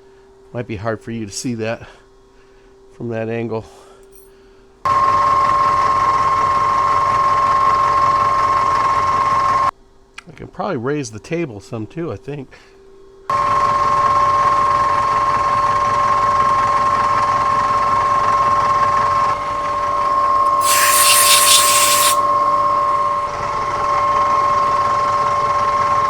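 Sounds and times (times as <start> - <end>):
loud hiss: 20.5 - 22.2
milling machine cutting metal: 20.5 - 22.2.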